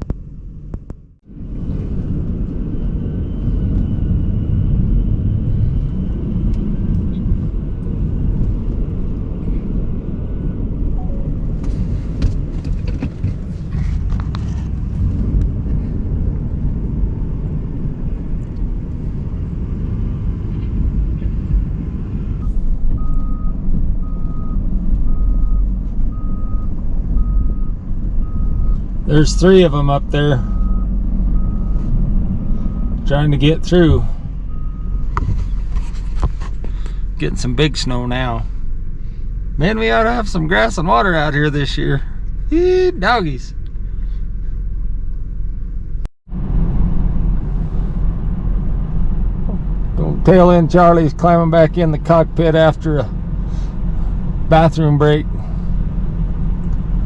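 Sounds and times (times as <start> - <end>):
truck engine rumble: 0.0 - 57.0
backup alarm beeping: 11.0 - 11.6, 22.4 - 29.5, 30.4 - 35.2.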